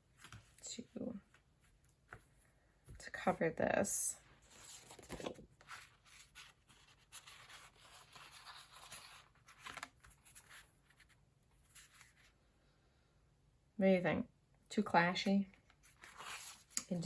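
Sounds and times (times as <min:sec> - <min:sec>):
rustling of fabric and paper: 0:00.0 - 0:03.0, 0:04.4 - 0:12.4.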